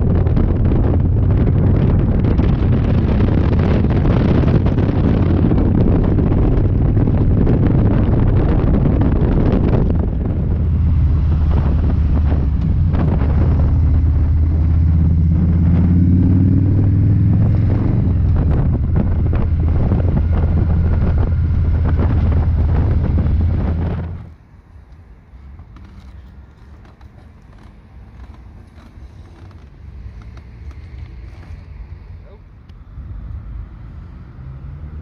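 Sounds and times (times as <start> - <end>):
motorcycle engine running: 0.0 - 24.3
wind noise on microphone: 0.0 - 32.2.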